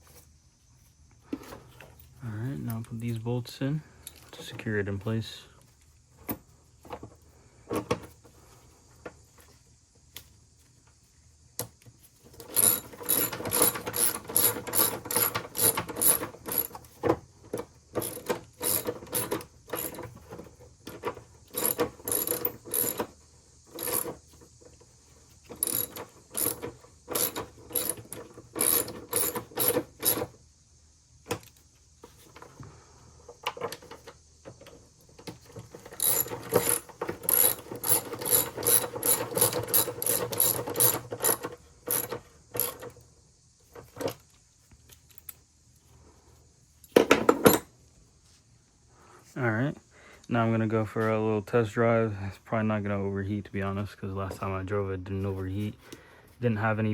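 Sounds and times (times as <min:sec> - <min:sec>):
hand ratchet clicking: 0:12.4 - 0:16.8, 0:18.0 - 0:20.0, 0:21.5 - 0:23.1, 0:23.7 - 0:24.1, 0:25.6 - 0:30.3, 0:35.8 - 0:42.9.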